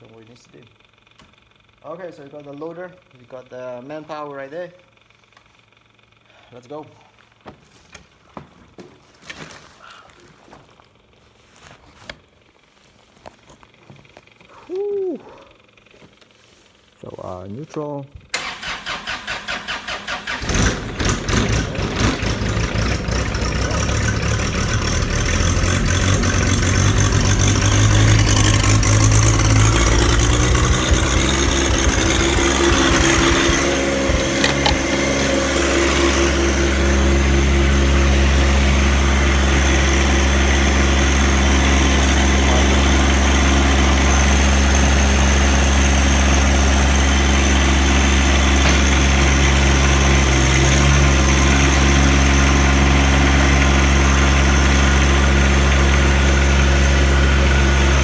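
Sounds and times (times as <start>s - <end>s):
diesel tractor engine starting: 18.3s - 58.0s.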